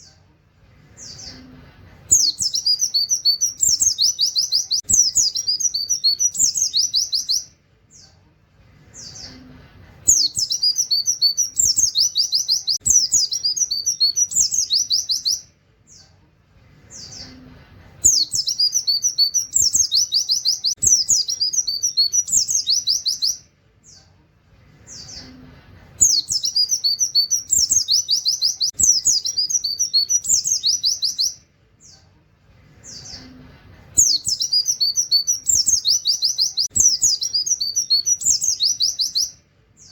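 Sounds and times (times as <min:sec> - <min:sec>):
bird chirps: 0:01.0 - 0:08.2, 0:10.1 - 0:16.2, 0:16.8 - 0:24.1, 0:26.0 - 0:32.1, 0:34.0 - 0:39.9
bird singing fast trills: 0:02.1 - 0:07.5, 0:10.1 - 0:15.5, 0:18.0 - 0:23.5, 0:26.0 - 0:31.4, 0:34.0 - 0:39.9.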